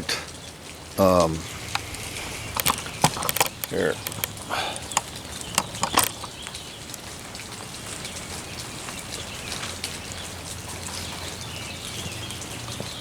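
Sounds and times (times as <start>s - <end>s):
light rain falling: 0.0s - 13.0s
sharp ticks: 1.5s - 7.1s.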